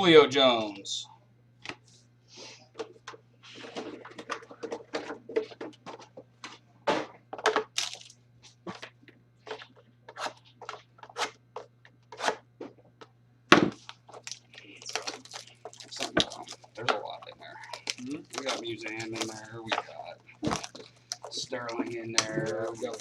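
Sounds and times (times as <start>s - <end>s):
faint electrical hum: 0.0s - 23.0s
card wrappers crinkling: 7.7s - 8.9s, 13.8s - 23.0s.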